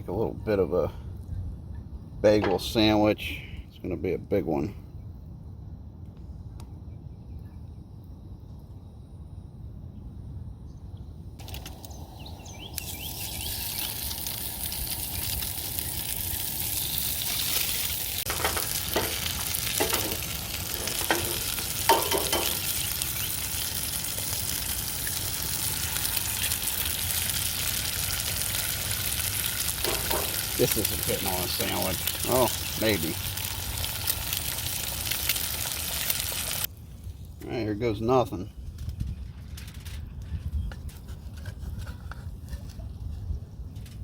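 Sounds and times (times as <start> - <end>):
food sizzling in a frying pan: 11.4 - 36.7
utensil clinking and scraping: 16.8 - 22.9, 29.8 - 33.1.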